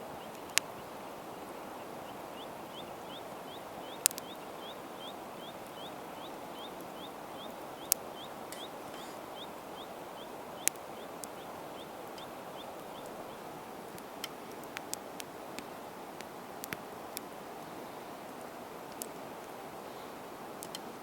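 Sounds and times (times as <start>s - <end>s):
steady outdoor hiss: 0.0s - 21.0s
campfire pops: 0.3s - 0.8s, 3.8s - 4.5s, 7.8s - 9.5s, 10.2s - 17.3s, 18.8s - 19.6s
bird rising chirp: 0.6s - 13.6s.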